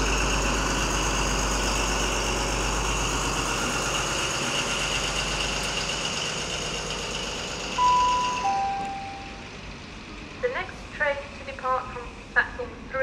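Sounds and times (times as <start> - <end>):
diesel train engine idling: 0.0 - 13.0
two-note announcement chime: 7.8 - 9.5.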